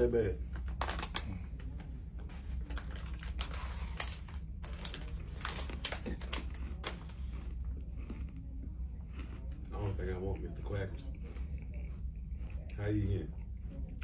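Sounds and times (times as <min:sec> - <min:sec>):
plastic packaging crinkling: 0:00.6 - 0:01.5, 0:02.6 - 0:07.6.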